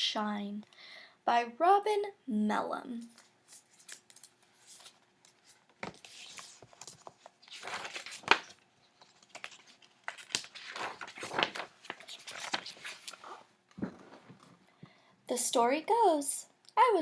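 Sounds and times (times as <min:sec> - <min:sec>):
paper pages rustling: 0:03.1 - 0:14.6
paper crackle: 0:03.2 - 0:14.5.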